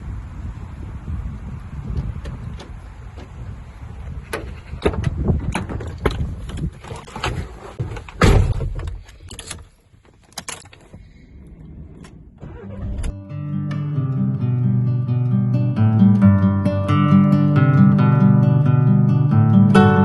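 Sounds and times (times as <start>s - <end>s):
wind noise on microphone: 0.0s - 9.6s, 10.6s - 13.2s.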